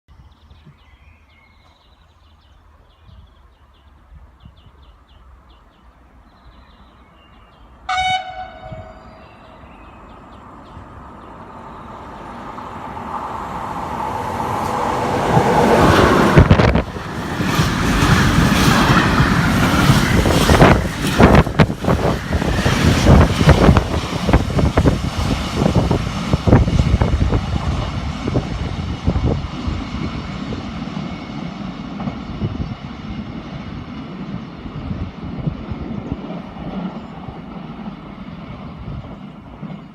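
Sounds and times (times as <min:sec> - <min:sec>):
freight train passing: 0:01.2 - 0:39.9
locomotive horn blast: 0:07.9 - 0:09.5.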